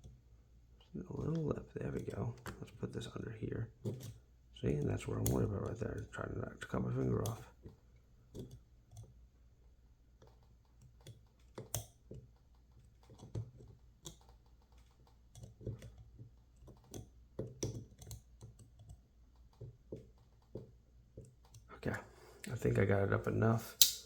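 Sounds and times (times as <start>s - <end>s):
knife clicking and scraping on lock: 23.8s - 24.0s.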